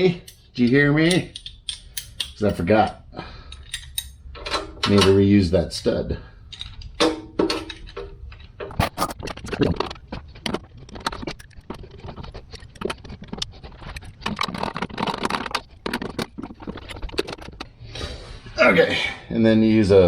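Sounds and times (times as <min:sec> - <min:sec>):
metal tools clinking: 0:00.0 - 0:05.2.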